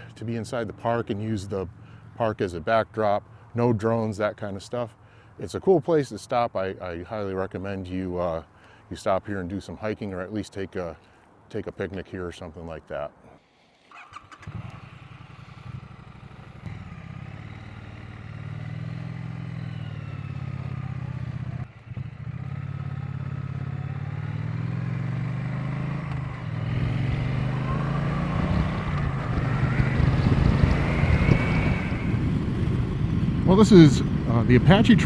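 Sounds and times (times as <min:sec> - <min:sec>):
motorcycle engine accelerating: 0:14.0 - 0:35.0.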